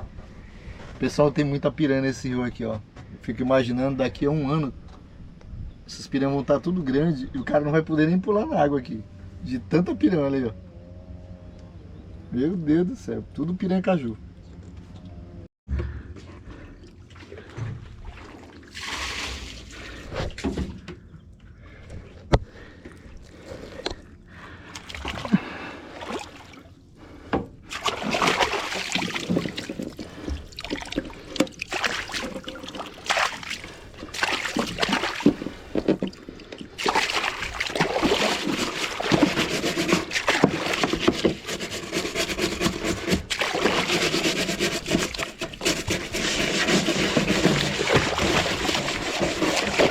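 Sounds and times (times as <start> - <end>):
water splashing against boat: 16.8 - 20.8, 22.5 - 49.9.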